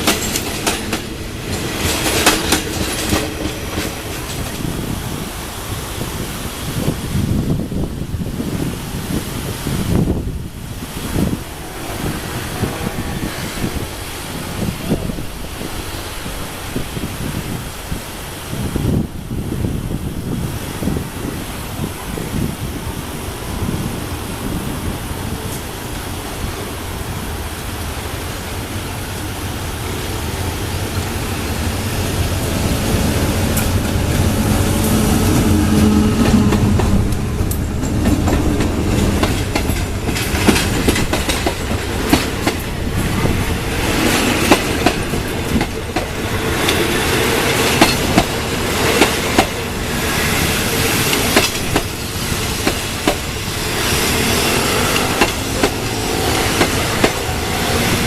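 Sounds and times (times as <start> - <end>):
train wheels clacking over rail joints: 0.0 - 5.4, 32.8 - 58.0.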